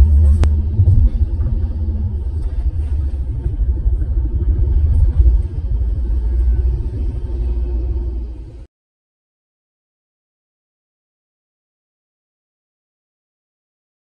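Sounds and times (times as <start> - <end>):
car engine running: 0.0 - 8.7.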